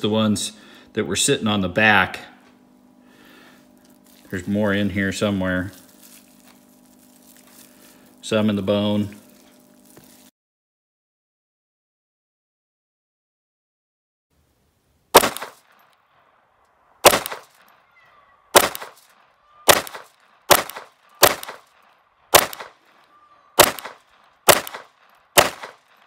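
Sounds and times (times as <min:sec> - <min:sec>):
pistol shots: 0:15.1 - 0:15.7, 0:17.0 - 0:17.6, 0:18.5 - 0:19.0, 0:19.6 - 0:21.7, 0:22.3 - 0:22.8, 0:23.6 - 0:26.0.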